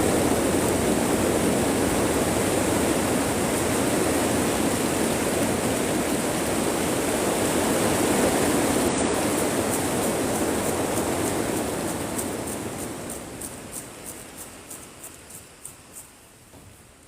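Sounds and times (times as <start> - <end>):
heavy rain on greenhouse roof: 0.0 - 14.7.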